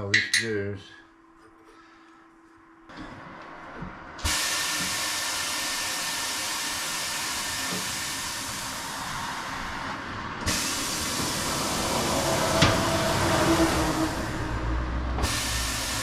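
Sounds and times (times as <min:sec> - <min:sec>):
compressed air hissing: 0:04.2 - 0:16.0.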